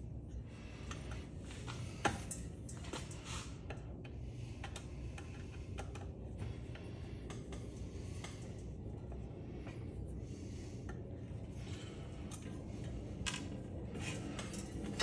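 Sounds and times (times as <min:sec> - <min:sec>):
light clicks of hand tools: 0:06.7 - 0:08.6.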